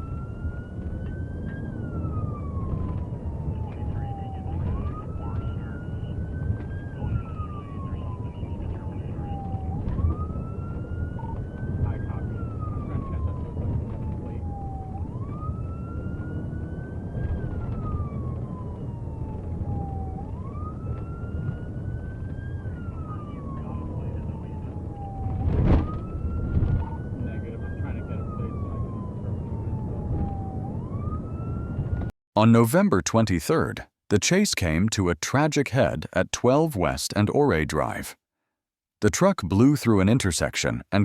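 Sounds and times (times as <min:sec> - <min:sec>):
police siren wailing: 0:00.0 - 0:32.1
engine and road rumble: 0:00.0 - 0:32.2.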